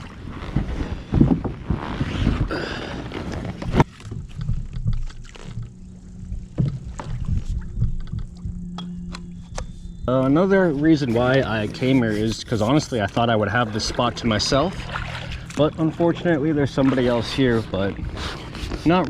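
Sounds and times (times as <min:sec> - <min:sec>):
water sloshing: 0:00.0 - 0:19.0
paddle knocking against hull: 0:03.7 - 0:05.7, 0:06.5 - 0:08.6.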